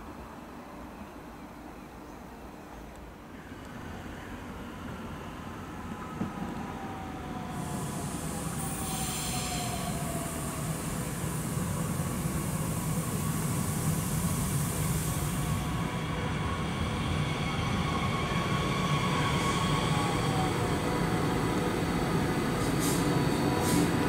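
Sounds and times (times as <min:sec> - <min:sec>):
electric train approaching: 0:03.4 - 0:24.0
wheels hissing on rail: 0:07.4 - 0:24.0.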